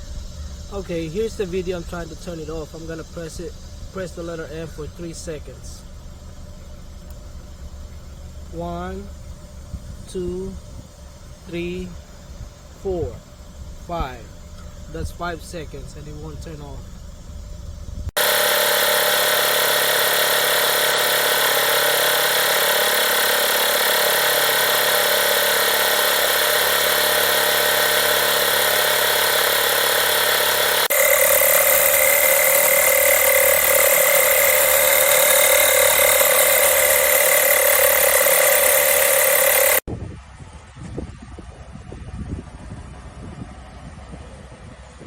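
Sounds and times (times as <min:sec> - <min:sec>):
tyre inflator compressor running: 0:00.0 - 0:39.9.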